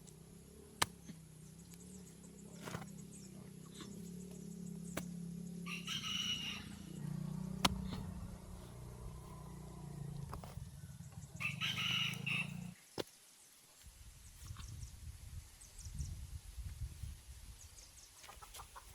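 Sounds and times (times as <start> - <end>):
low steady hum: 0.0 - 12.8
rooster crowing: 5.6 - 10.6, 11.4 - 12.8.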